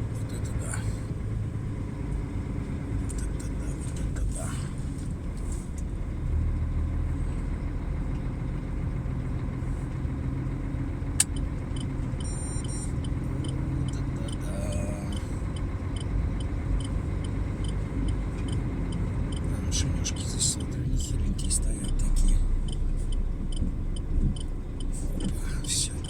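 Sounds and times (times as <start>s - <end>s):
truck engine running: 0.0s - 26.0s
short electronic beeps: 11.3s - 14.5s.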